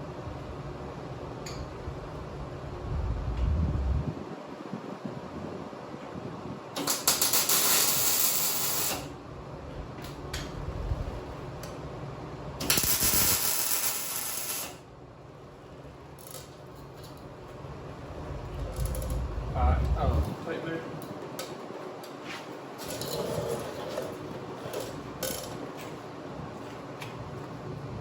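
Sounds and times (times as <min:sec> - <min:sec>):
arc welding crackling sizzle: 0:06.8 - 0:09.2, 0:12.6 - 0:14.8.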